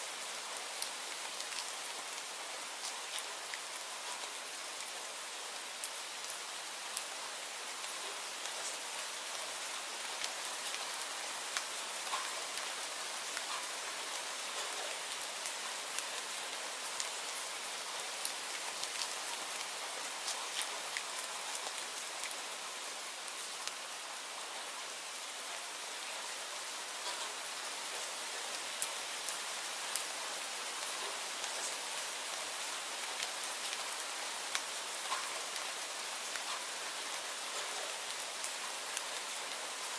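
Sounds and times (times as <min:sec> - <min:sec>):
steady rainfall: 0:00.0 - 0:39.9
raindrops ticking: 0:27.0 - 0:27.4, 0:34.5 - 0:35.7, 0:36.3 - 0:36.7.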